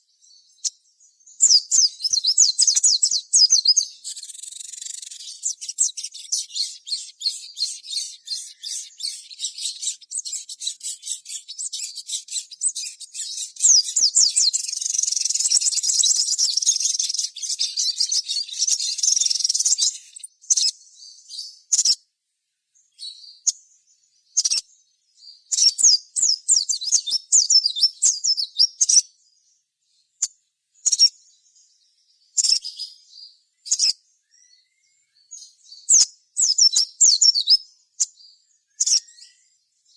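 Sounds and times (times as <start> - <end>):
bird chattering chirps: 1.4 - 22.0, 24.3 - 24.8, 25.5 - 29.1, 30.2 - 31.2, 32.4 - 33.0, 33.6 - 34.7, 35.8 - 39.3.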